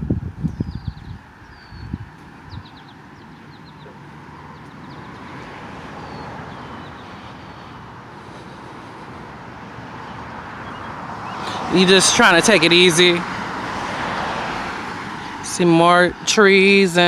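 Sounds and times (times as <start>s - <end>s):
highway traffic rush: 0.0s - 17.0s
faint bird chirps: 0.5s - 9.2s.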